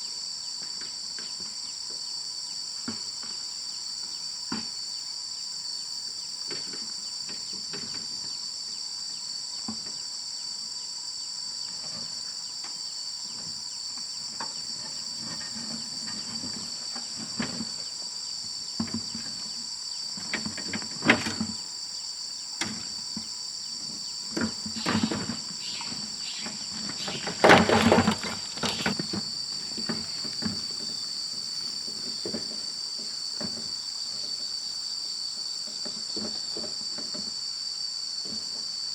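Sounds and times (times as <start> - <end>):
insects chorus: 0.0 - 38.9
knocks and scrapes: 14.4 - 17.9, 23.8 - 34.4.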